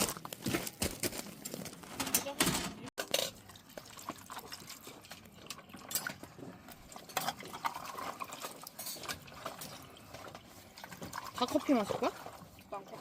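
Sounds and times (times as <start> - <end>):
utensils stirring soup in a pot: 1.3 - 13.0
liquid sloshing: 3.0 - 13.0.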